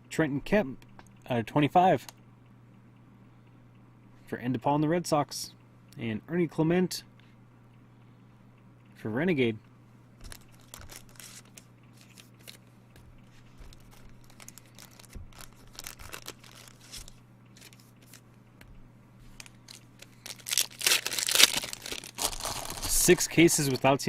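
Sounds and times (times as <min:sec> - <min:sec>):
cards clicking and rustling: 0:10.2 - 0:12.6, 0:13.4 - 0:18.2, 0:19.2 - 0:24.0
wrapping torn and crinkled: 0:10.2 - 0:12.6, 0:13.7 - 0:18.2, 0:19.2 - 0:23.9.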